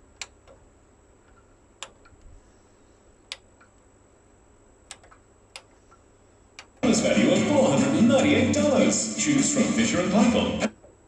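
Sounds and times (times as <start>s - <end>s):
faint steady hiss: 0.0s - 11.0s
sharp clicks: 4.9s - 6.0s.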